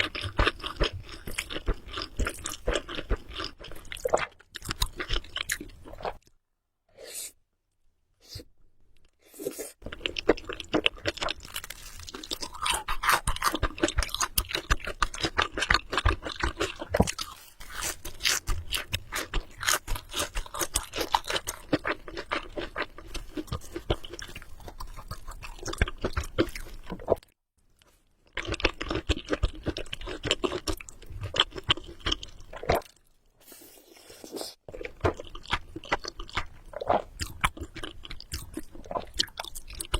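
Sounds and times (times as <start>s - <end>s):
close chewing of noodles: 0.0s - 6.3s, 9.3s - 27.2s, 28.2s - 39.9s.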